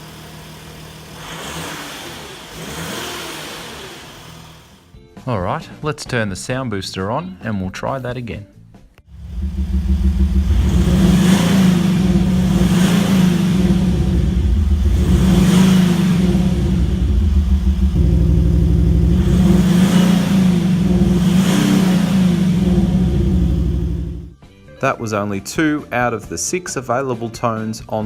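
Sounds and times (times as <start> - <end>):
car engine revving: 0.7 - 4.8, 9.1 - 24.3
synthetic engine note from speaker: 9.1 - 24.3.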